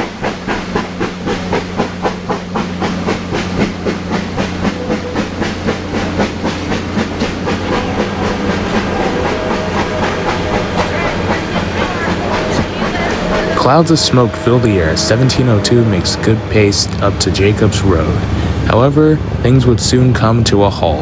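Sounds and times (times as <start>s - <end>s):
steam locomotive exhaust chuffing: 0.0s - 20.4s
low steady drone: 12.7s - 20.1s.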